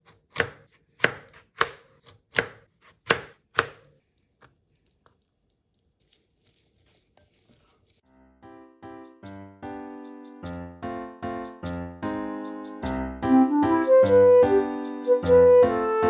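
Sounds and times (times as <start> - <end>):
knife chopping on cutting board: 0.0 - 3.9
background music: 8.4 - 16.0.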